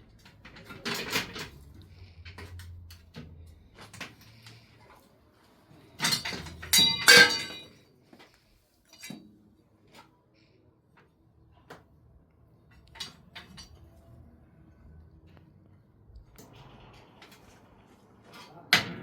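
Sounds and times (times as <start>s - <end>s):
hard objects clinking together: 6.0s - 7.8s.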